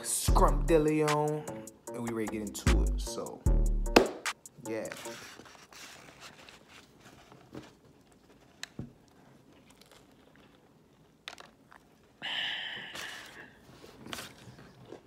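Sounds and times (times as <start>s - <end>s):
crunch biting fried chicken: 9.5s - 11.0s.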